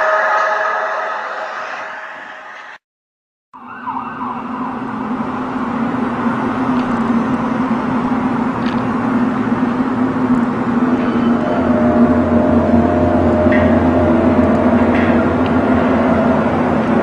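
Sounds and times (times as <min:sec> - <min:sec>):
noisy rumble: 0:04.7 - 0:17.0
low droning hum: 0:05.0 - 0:17.0.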